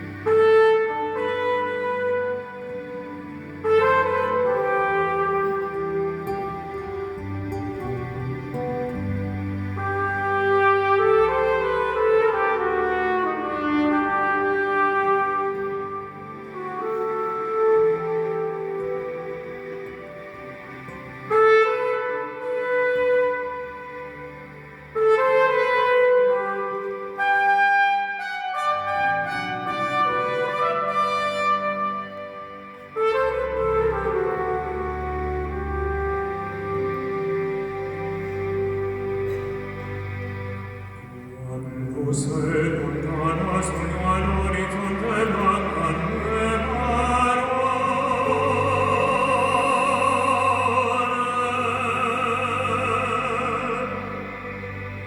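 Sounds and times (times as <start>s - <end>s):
trumpet playing slow melody: 0.0s - 41.6s, 42.6s - 55.0s
soft musical accompaniment: 0.0s - 55.0s
low sustained bass: 33.9s - 55.0s
operatic singing with vibrato: 40.0s - 55.0s.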